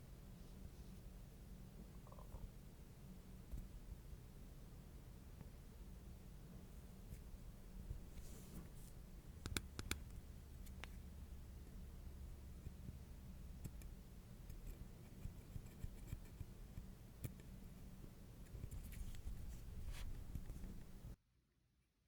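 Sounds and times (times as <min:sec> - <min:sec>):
steady low hum: 0:00.0 - 0:21.2.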